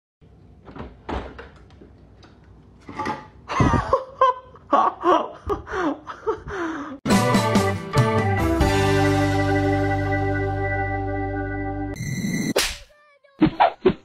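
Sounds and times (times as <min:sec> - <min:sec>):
person laughing: 0:03.5 - 0:07.0.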